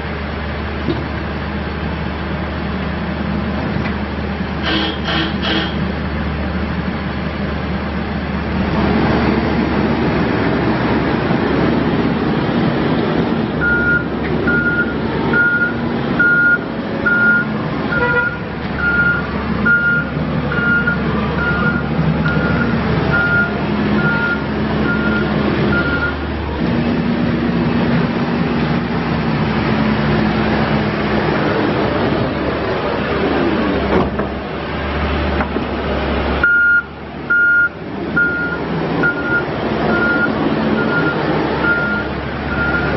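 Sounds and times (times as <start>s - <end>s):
diesel engine running under load: 0.0s - 42.9s
reverse alarm beeps: 13.6s - 17.5s, 18.2s - 26.2s, 36.4s - 42.9s.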